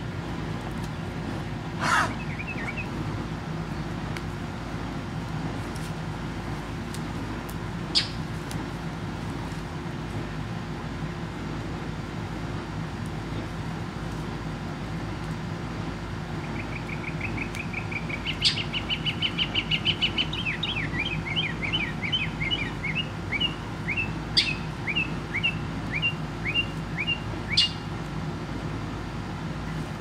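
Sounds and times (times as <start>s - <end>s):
steady low hum: 0.0s - 30.0s
small bird singing: 1.8s - 2.9s, 7.9s - 8.2s, 16.4s - 27.9s.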